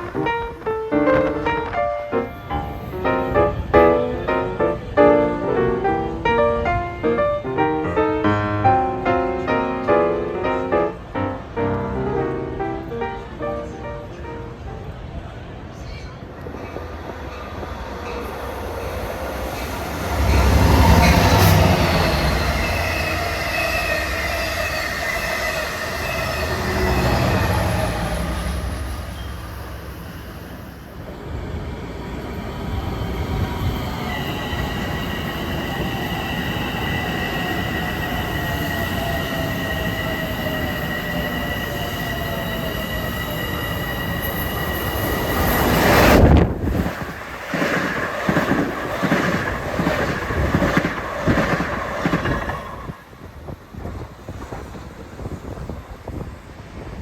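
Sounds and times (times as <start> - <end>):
commuter train rolling past: 0.0 - 57.0
high-pitched wheel squeal: 18.0 - 30.9, 33.6 - 46.2.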